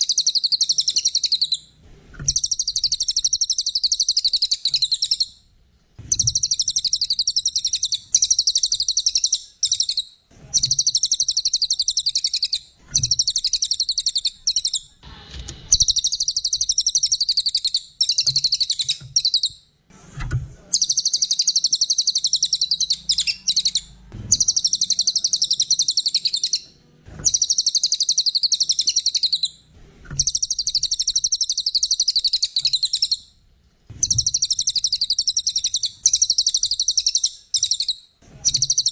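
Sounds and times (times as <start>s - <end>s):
songbird trilled chattering: 0.0s - 1.6s, 2.3s - 5.3s, 6.1s - 14.8s, 20.8s - 26.6s, 27.3s - 29.5s, 34.0s - 38.9s.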